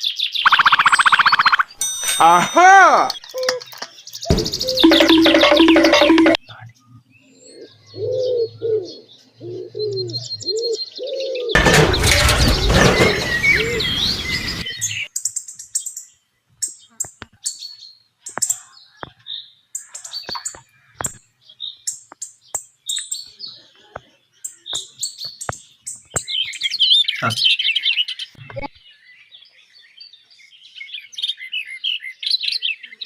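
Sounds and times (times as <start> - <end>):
high-pitched bird chirps: 0.3 - 6.6
dove-like coos: 7.5 - 11.6.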